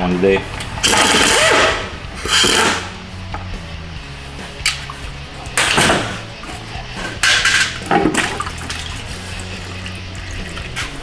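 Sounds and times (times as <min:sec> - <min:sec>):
metal pan clatter: 0:07.2 - 0:08.3.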